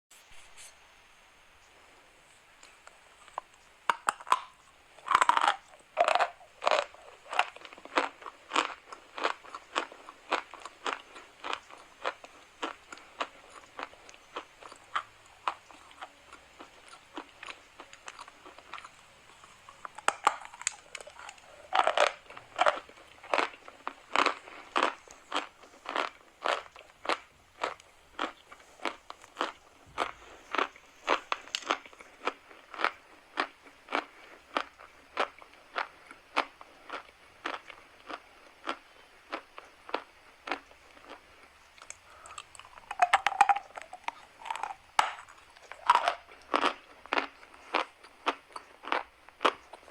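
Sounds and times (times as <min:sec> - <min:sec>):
chewing crunches: 0:02.6 - 0:49.9
crunching bite of chalk: 0:41.8 - 0:49.9.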